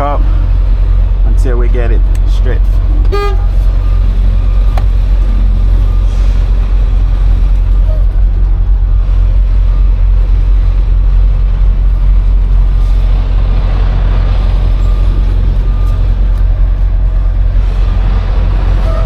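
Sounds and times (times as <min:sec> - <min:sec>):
diesel truck engine rumbling: 0:00.0 - 0:19.0.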